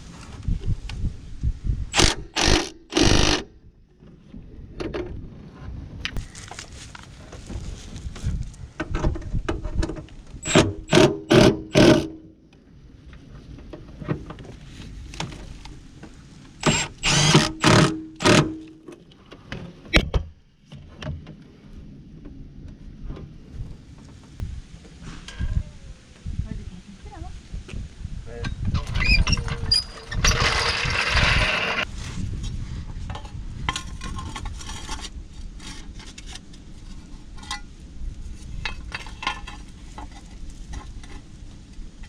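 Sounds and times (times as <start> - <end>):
impact wrench rattling bursts: 1.9 - 3.5, 10.4 - 12.2, 16.6 - 18.7, 30.0 - 31.8.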